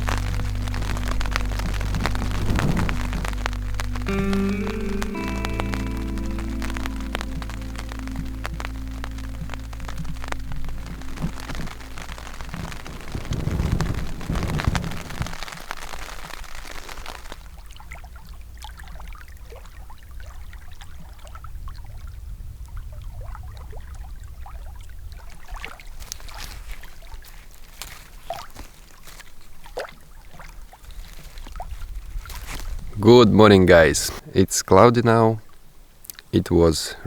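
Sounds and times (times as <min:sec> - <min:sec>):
heavy rain: 0:00.0 - 0:17.7
raindrops ticking on tarp: 0:00.0 - 0:19.9, 0:25.2 - 0:34.2.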